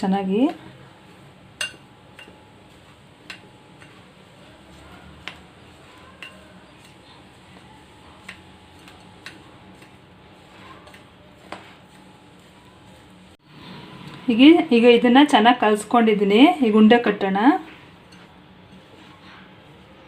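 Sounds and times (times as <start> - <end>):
spoon clinking against a bowl: 1.6 - 2.4, 6.0 - 7.0.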